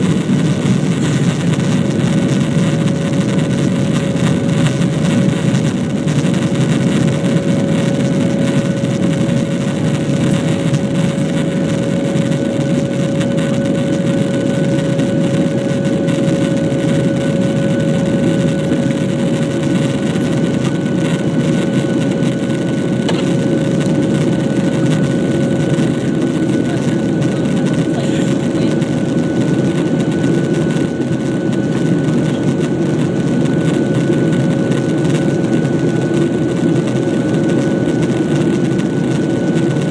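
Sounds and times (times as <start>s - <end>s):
jet engines and rushing air: 0.0s - 39.9s
steady whine: 0.0s - 39.9s.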